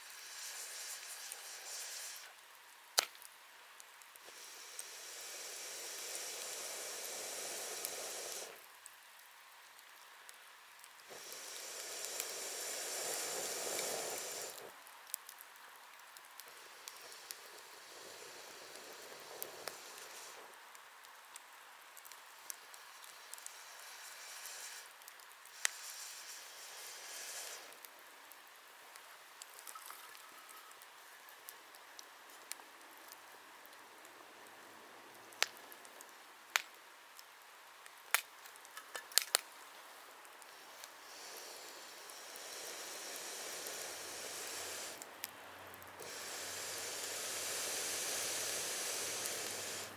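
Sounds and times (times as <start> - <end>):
burning log hissing: 0.0 - 3.1, 4.1 - 8.8, 9.9 - 36.7, 38.5 - 49.9
fire crackling and popping: 0.0 - 49.9.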